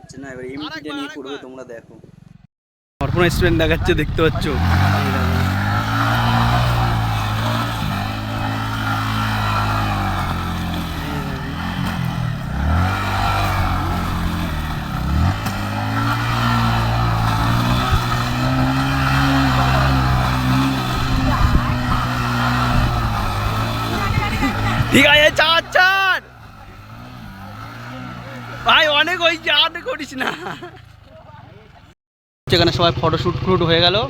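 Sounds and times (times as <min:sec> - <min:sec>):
motorcycle engine running: 0:03.0 - 0:31.9.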